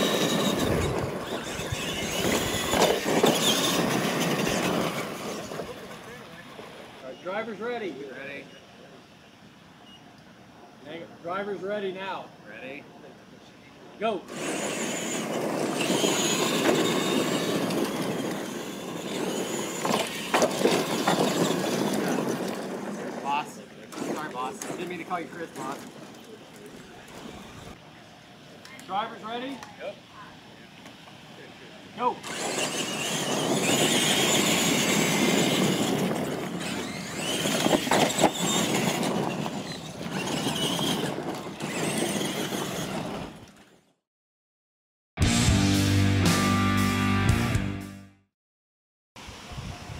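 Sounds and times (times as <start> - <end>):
tyres on loose gravel: 0.0 - 7.2, 14.3 - 27.8, 32.2 - 43.9
rc truck motors racing: 0.0 - 7.6, 14.2 - 27.8, 30.4 - 44.0.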